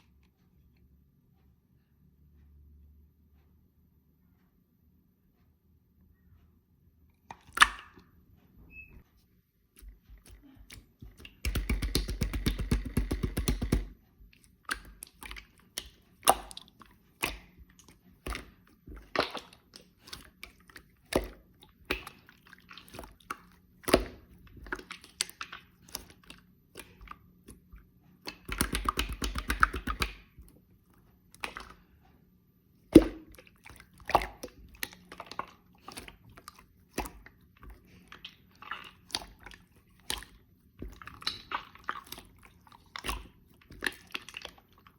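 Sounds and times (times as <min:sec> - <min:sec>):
slime squishing wet clicks: 0:07.2 - 0:08.1, 0:09.8 - 0:32.1, 0:32.8 - 0:44.9.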